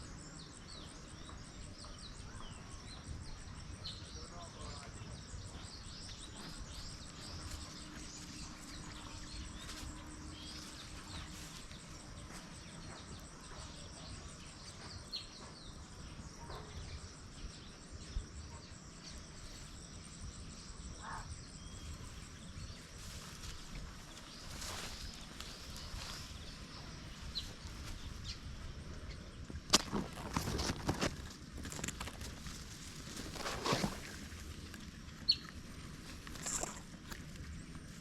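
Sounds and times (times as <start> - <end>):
small birds chirping: 0.0 - 38.0
insect trilling: 20.7 - 38.0.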